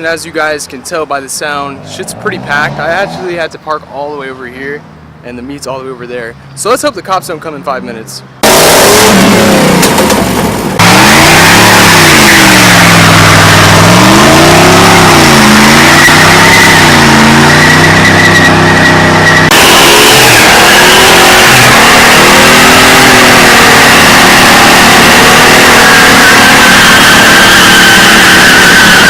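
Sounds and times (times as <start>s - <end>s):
engine revving hard: 8.4s - 29.0s.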